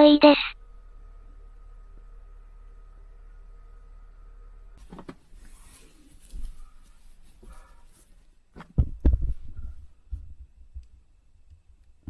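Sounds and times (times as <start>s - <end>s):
faint rustling: 4.8s - 11.1s
low thumps and knocks: 8.6s - 10.9s.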